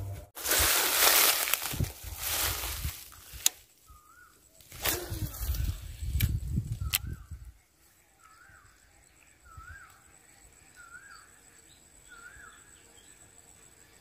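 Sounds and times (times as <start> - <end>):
distant bird calling: 3.4 - 5.9, 6.8 - 13.2.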